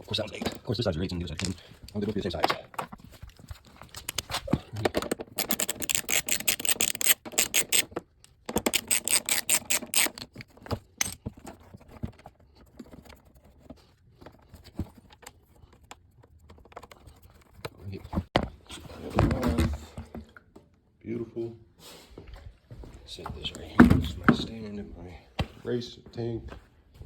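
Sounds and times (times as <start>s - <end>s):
metal hand tools clicking: 5.3s - 7.9s, 8.6s - 10.3s.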